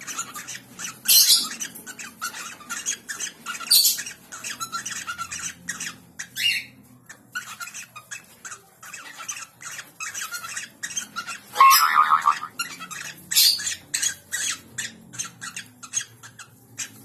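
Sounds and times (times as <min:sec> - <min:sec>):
small birds chirping: 0:00.0 - 0:17.0
harsh bird squawk: 0:11.4 - 0:13.7.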